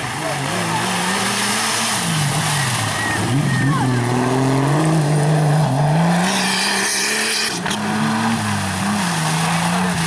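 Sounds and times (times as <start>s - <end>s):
race vehicle engine running hard: 0.0s - 10.0s.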